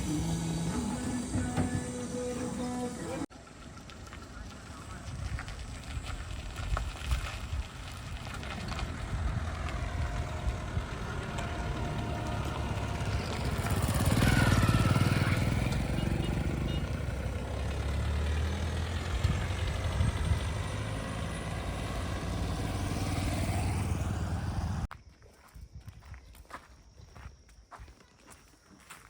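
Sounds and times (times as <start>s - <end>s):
heavy diesel engine running: 0.0s - 3.3s, 8.3s - 24.9s.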